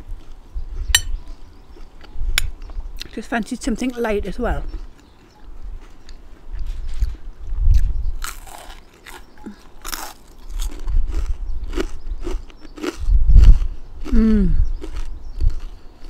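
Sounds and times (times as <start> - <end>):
wind rumble on microphone: 0.0 - 8.4, 10.5 - 15.8
crunching fried chip: 7.8 - 13.7, 14.8 - 15.8.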